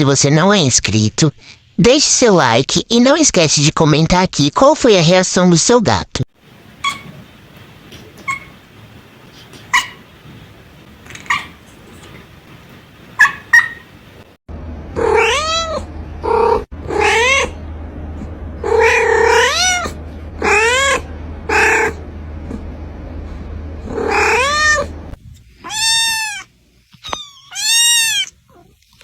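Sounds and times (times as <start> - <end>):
low hum: 13.8 - 25.6
cats meowing: 15.0 - 17.6, 18.6 - 22.0, 23.9 - 24.9, 25.6 - 28.8.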